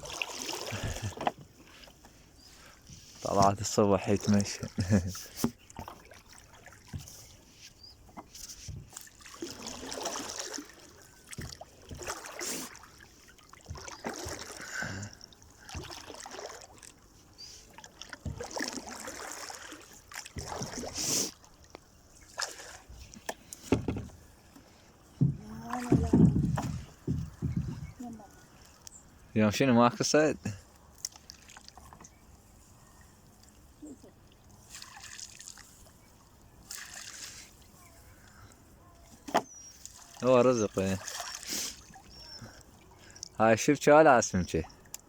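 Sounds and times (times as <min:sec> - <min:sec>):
water splashing around boat: 0:00.0 - 0:45.0.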